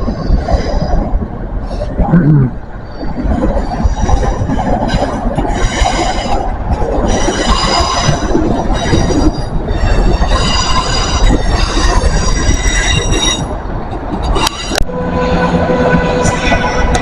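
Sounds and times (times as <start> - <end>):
train rumble: 0.0 - 17.0
train wheels squealing: 7.0 - 13.6.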